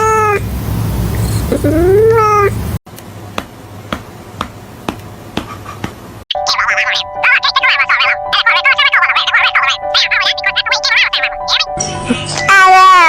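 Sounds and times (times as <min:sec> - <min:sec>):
cat meowing: 0:01.5 - 0:02.6.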